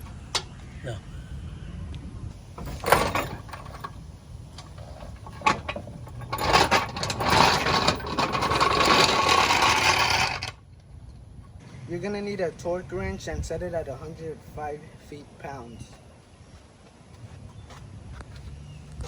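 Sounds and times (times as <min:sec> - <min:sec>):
metallic knocks: 0:02.6 - 0:10.6.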